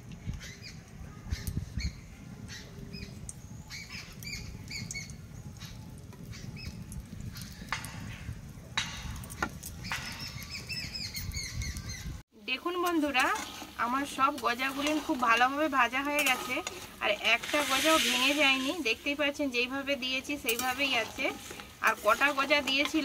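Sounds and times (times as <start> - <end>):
small birds chirping: 0.2 - 8.4, 9.6 - 12.2
soft hissing: 12.7 - 23.0.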